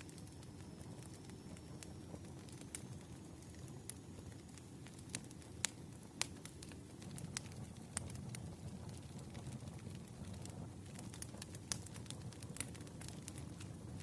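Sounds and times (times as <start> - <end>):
campfire flames rumbling: 0.0 - 14.0
wood crackling and popping: 0.0 - 14.0.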